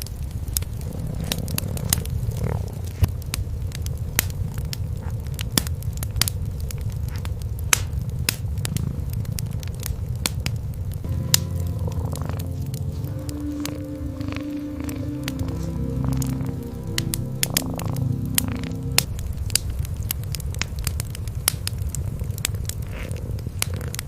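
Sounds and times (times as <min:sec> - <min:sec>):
wood fire crackling: 0:00.0 - 0:24.0
cats purring: 0:00.5 - 0:03.2, 0:07.9 - 0:10.3, 0:11.4 - 0:19.1, 0:21.6 - 0:24.0
sustained tones: 0:11.1 - 0:19.2.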